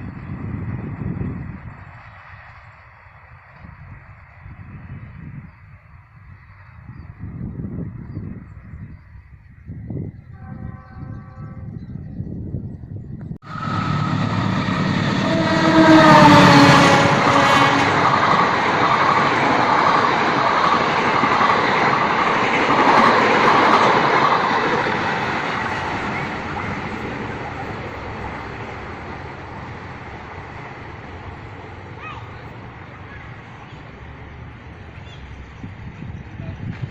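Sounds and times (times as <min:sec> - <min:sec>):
train horn: 0:10.3 - 0:11.9, 0:13.5 - 0:18.3
train carriages rattling on rails: 0:13.6 - 0:36.9.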